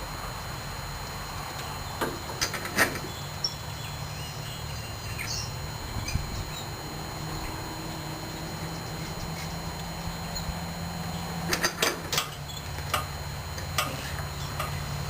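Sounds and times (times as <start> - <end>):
steady low background hum: 0.0 - 15.0
bird chirps: 3.1 - 11.3.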